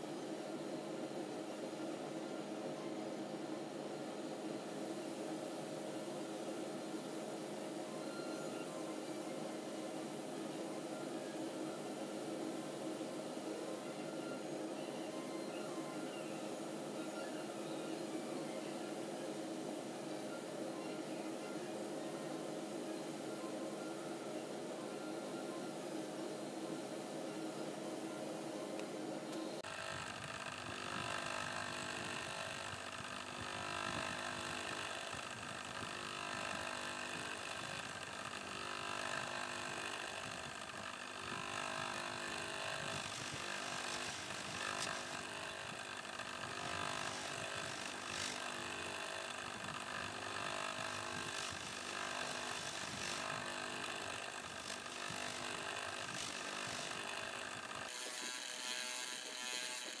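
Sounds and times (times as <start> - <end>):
electric motor hum: 28.1 - 60.0
polishing wheel grinding hiss: 29.6 - 60.0.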